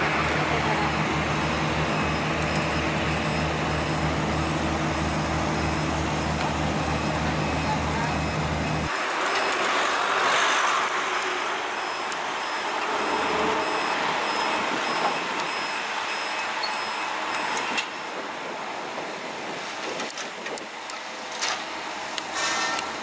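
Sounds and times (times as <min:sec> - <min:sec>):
heavy machinery running: 0:00.0 - 0:23.0
faint high beeping: 0:00.3 - 0:09.5, 0:11.8 - 0:17.6.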